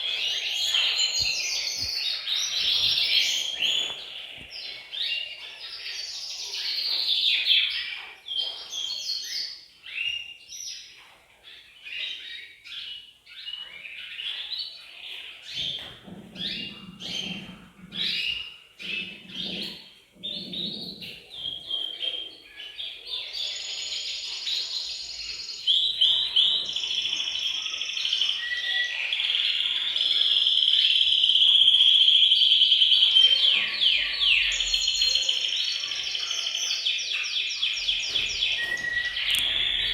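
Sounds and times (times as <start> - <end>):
canaries chirping and trilling: 0.0 - 39.9.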